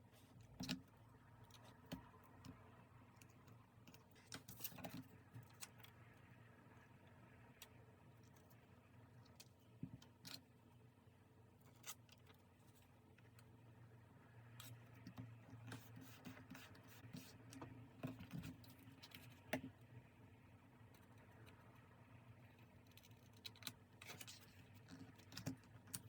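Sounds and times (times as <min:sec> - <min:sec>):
paper and stationery handled on desk: 0:15.2 - 0:19.7.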